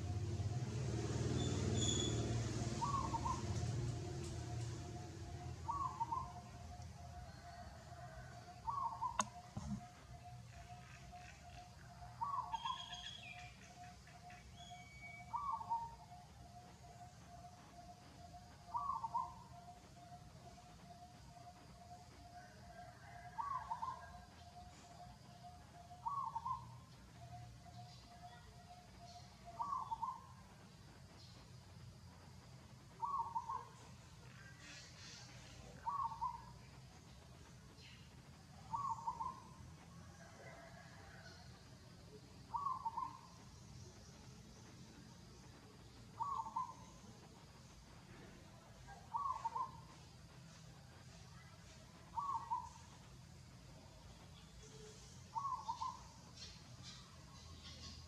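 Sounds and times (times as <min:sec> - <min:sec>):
faint high chirps: 0:00.0 - 0:31.8, 0:32.9 - 0:58.0
soft pulsed bird notes: 0:01.4 - 0:31.7
bird hooting call: 0:02.8 - 0:03.8, 0:04.6 - 0:13.9, 0:14.5 - 0:16.1, 0:18.2 - 0:20.1, 0:23.0 - 0:24.2, 0:25.8 - 0:26.7, 0:29.0 - 0:30.3, 0:33.0 - 0:33.8, 0:34.5 - 0:36.5, 0:38.6 - 0:39.6, 0:42.5 - 0:43.4, 0:46.2 - 0:47.0, 0:48.9 - 0:49.8, 0:52.1 - 0:52.7, 0:55.3 - 0:56.2.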